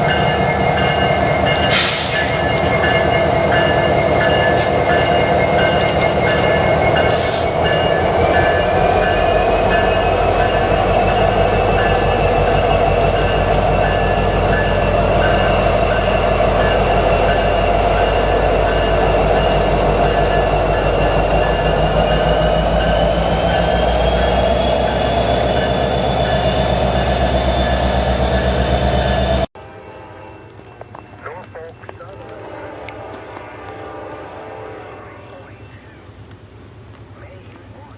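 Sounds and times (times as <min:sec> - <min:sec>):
high wheel squeal: 0:00.0 - 0:29.5
freight train rumbling past: 0:00.0 - 0:37.9.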